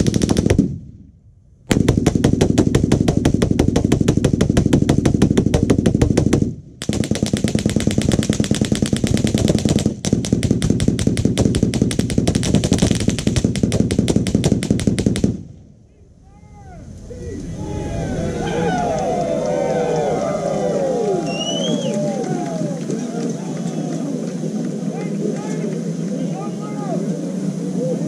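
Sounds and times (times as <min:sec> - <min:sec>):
machine gun firing bursts: 0:00.0 - 0:00.7, 0:01.7 - 0:15.4.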